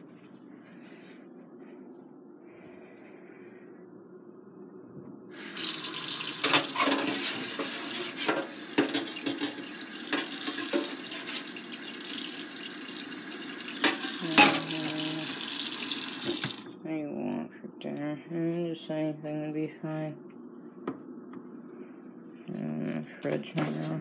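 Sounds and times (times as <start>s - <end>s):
water running from a tap: 5.4s - 16.8s.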